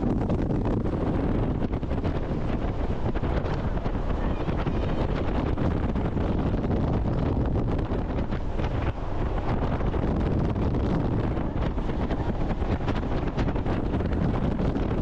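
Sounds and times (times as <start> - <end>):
boat engine: 0.0 - 15.0
wind buffeting microphone: 0.0 - 15.0.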